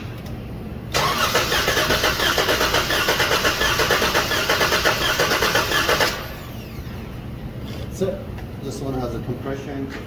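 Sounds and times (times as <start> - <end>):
starter cranking engine: 1.0 - 6.5.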